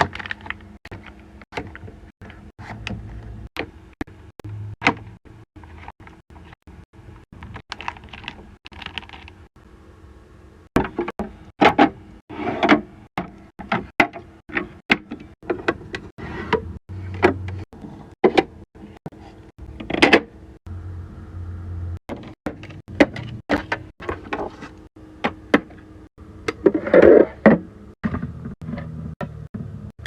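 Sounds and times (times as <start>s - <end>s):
low hum: 0.0s - 12.2s, 18.8s - 26.9s.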